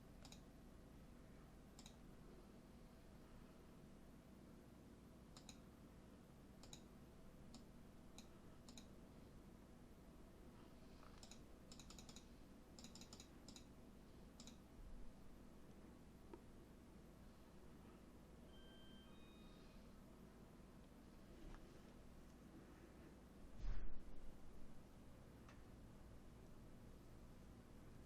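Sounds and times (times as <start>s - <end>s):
low steady hum: 0.0s - 28.0s
computer mouse clicks: 0.2s - 0.5s, 1.7s - 2.0s, 5.3s - 5.7s, 6.6s - 6.9s, 7.5s - 9.0s, 11.0s - 13.7s, 14.3s - 14.6s.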